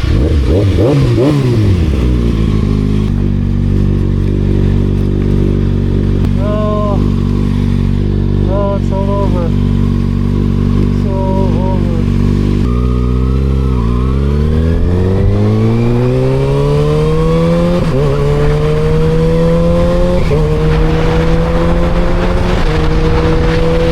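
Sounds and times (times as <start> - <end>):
motorcycle engine accelerating: 0.0 - 23.9
wind noise: 13.4 - 23.9.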